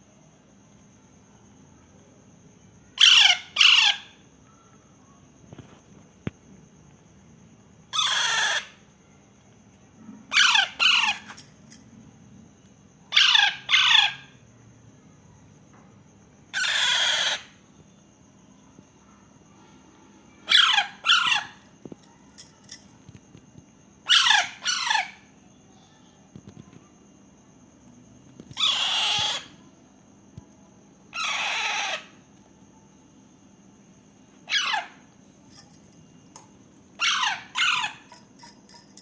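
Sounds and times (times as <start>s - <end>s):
parakeet chick screeching: 8.0s - 8.8s, 16.6s - 17.5s, 28.6s - 29.5s, 31.2s - 32.1s, 34.5s - 35.0s, 37.0s - 38.0s.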